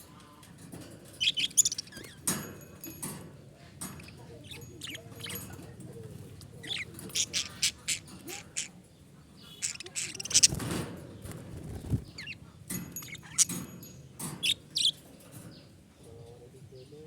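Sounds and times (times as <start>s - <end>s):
budgerigars chattering: 1.2s - 2.4s, 3.9s - 10.7s, 11.9s - 15.0s.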